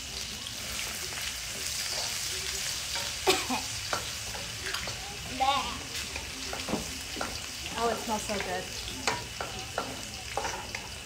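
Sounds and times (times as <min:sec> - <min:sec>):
garlic and chilies sizzling in oil: 0:00.0 - 0:11.0
wooden spatula clacking on pan: 0:03.8 - 0:05.0, 0:06.2 - 0:11.0.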